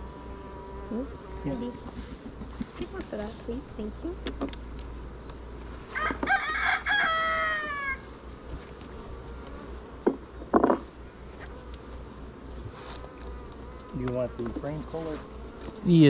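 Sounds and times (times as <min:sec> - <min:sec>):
rooster crowing: 0:05.9 - 0:08.1.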